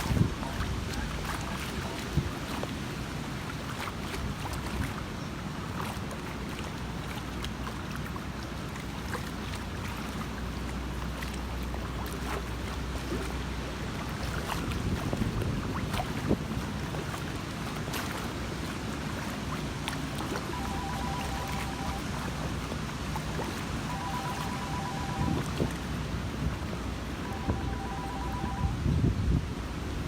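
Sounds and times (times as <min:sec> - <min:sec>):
wind buffeting microphone: 0:00.0 - 0:06.5, 0:13.6 - 0:20.5, 0:25.0 - 0:30.0
small water splashes: 0:00.0 - 0:28.7.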